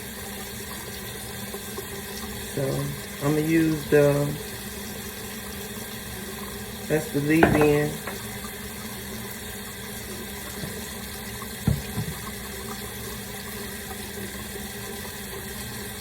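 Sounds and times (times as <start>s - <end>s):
tap running into sink: 6.9s - 8.7s, 10.1s - 12.8s
short knock: 7.4s - 8.2s, 11.7s - 12.2s.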